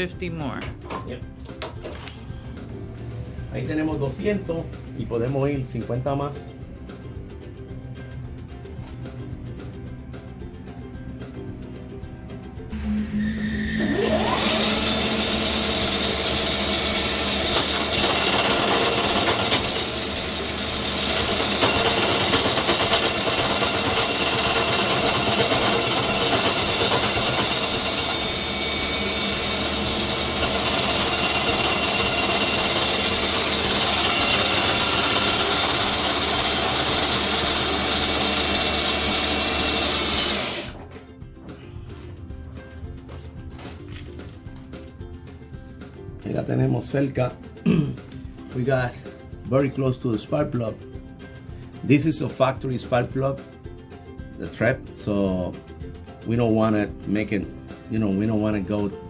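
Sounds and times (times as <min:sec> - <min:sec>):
machine tool cutting metal: 0:13.4 - 0:40.8.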